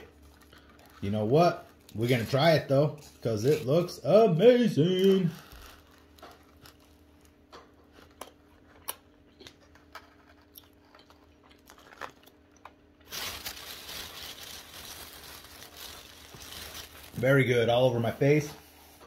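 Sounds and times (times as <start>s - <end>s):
chewing: 0.0s - 1.1s, 5.6s - 12.8s
food wrapper crinkling: 0.0s - 4.0s, 4.6s - 18.4s.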